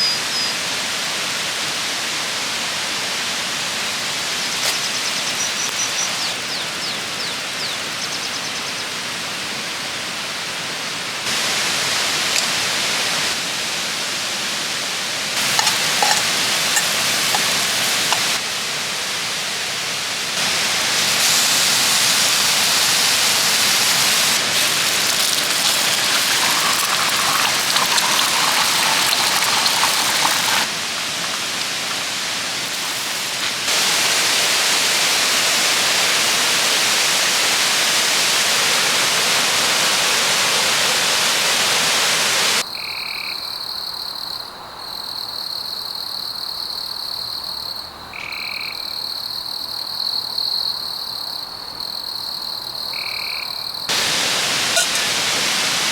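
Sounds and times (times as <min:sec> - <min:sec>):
waterfall rushing: 0:11.3 - 0:42.6, 0:53.9 - 0:55.9.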